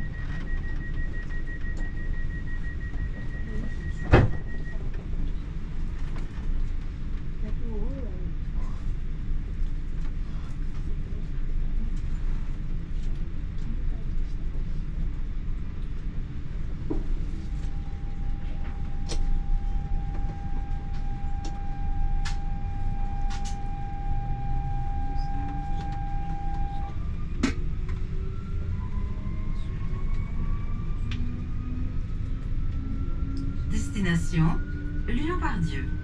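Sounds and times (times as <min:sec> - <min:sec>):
train rumble inside carriage: 0:00.0 - 0:36.0
train whine: 0:16.7 - 0:36.0.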